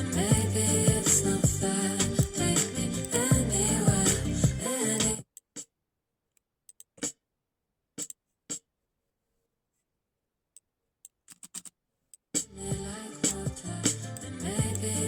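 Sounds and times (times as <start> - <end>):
music playing: 0.0 - 5.2, 12.6 - 15.0
sharp clicks and taps: 11.0 - 11.8.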